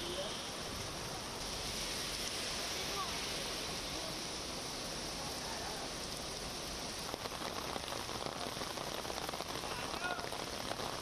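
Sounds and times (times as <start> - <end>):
heavy rain on wet road: 0.0 - 11.0.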